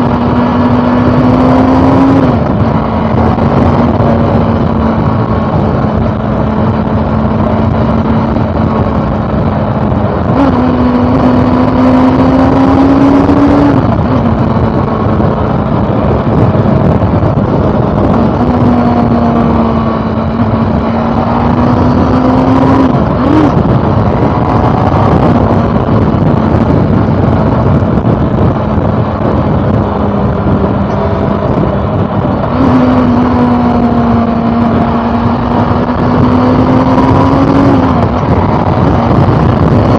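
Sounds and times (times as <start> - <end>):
motorcycle engine running: 0.0 - 39.9
wind rushing: 0.0 - 39.9.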